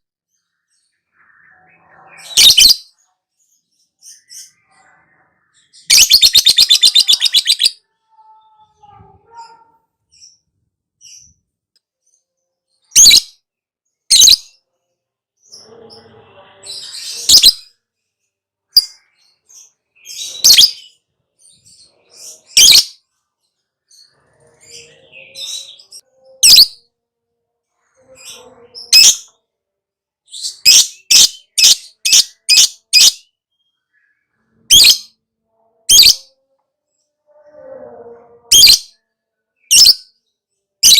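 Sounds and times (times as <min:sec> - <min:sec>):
lovebird calling: 0:05.9 - 0:07.7.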